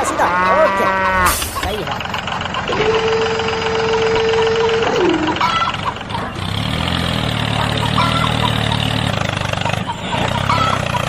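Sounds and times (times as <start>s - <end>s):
cow mooing: 0.0s - 1.4s
vehicle engine idling: 1.0s - 11.0s.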